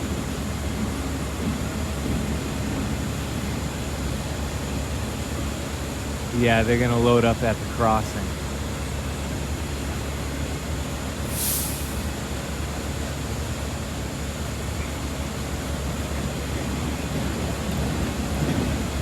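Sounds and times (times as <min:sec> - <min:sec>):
diesel engines idling: 0:00.0 - 0:19.0
air release hiss: 0:11.3 - 0:12.2.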